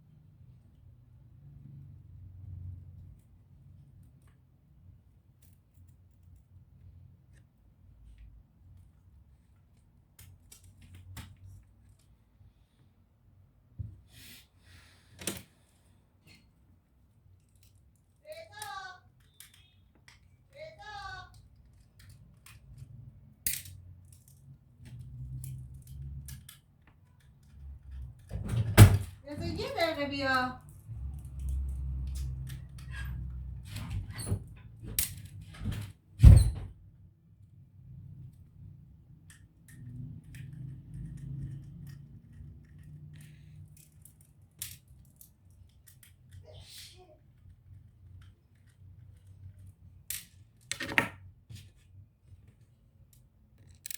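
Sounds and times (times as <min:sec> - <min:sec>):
laptop parts and tools clicking: 0:08.6 - 0:12.2, 0:17.2 - 0:20.6, 0:21.3 - 0:28.3, 0:38.2 - 0:46.4, 0:47.3 - 0:53.9
small tools clicking and tapping: 0:17.4 - 0:20.5, 0:39.1 - 0:46.4, 0:52.5 - 0:53.9.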